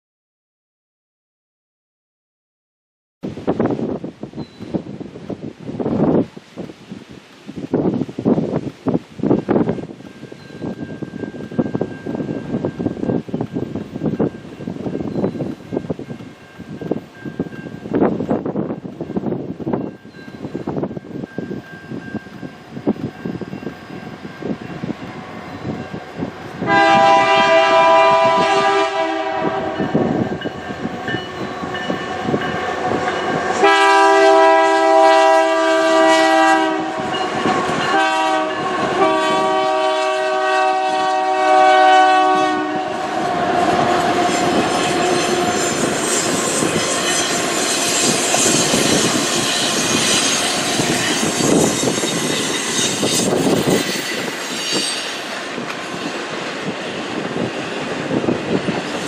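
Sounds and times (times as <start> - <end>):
locomotive air horn blasts: 26.6 - 30.2, 32.8 - 48.1
wheels rolling on rails: 43.2 - 59.0.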